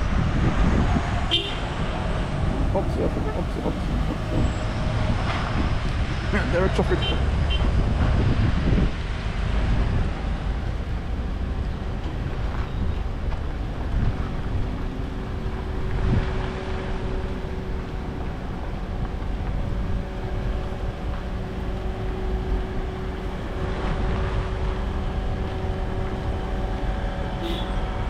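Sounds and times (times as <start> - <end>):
wind on microphone: 0.0 - 6.4, 7.2 - 28.0
heavy engines running: 0.0 - 28.0
traffic: 0.0 - 28.0.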